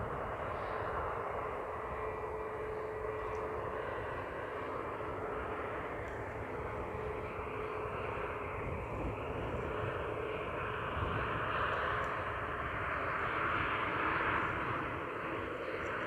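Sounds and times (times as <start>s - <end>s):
airliner engine noise: 0.0s - 16.0s
wind on microphone: 6.3s - 16.0s.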